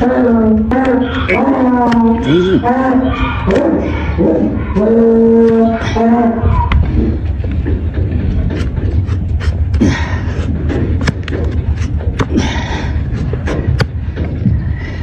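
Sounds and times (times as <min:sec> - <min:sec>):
steady low rumble: 0:00.0 - 0:15.0
rasping scrapes on hoof: 0:08.4 - 0:12.1.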